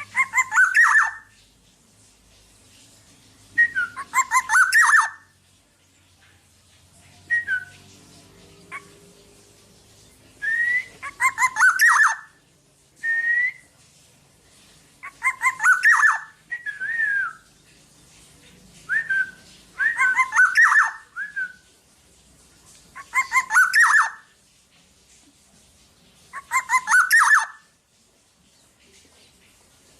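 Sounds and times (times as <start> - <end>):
bird singing fluty whistles: 3.6 - 5.2, 7.3 - 7.8, 10.4 - 12.3, 13.0 - 13.7, 15.2 - 17.5, 18.9 - 21.7, 23.2 - 24.2, 26.5 - 27.6.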